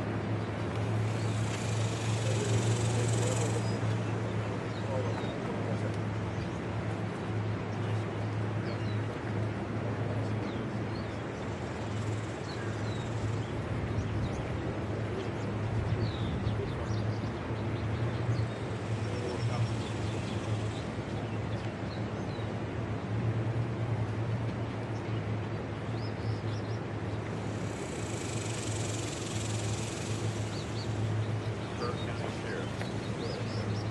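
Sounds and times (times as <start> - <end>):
low machine hum: 0.2 - 9.2.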